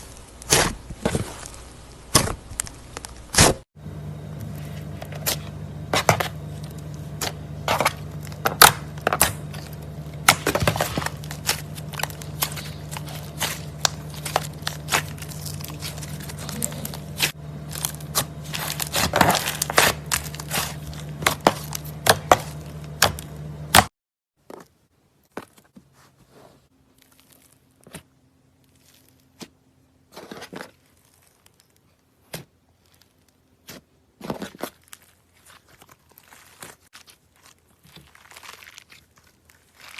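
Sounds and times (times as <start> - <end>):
slime crackling and popping: 0.0 - 3.6, 5.2 - 23.3, 30.2 - 39.9
steady low hum: 0.0 - 23.9.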